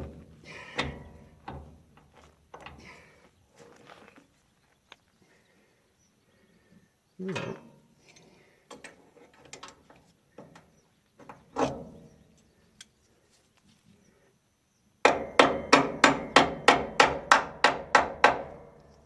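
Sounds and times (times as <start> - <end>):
hammer blows on metal: 15.1 - 18.7.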